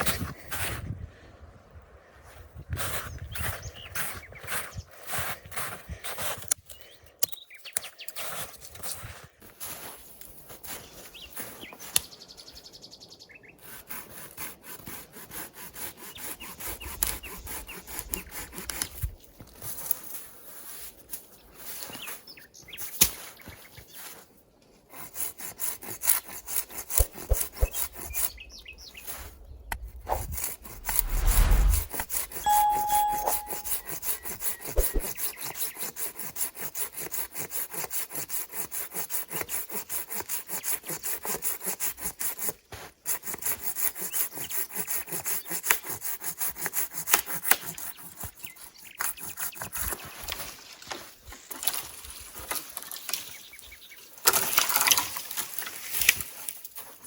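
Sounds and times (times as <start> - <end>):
hand saw cutting wood: 13.6 - 19.1, 24.8 - 31.0, 33.8 - 50.5.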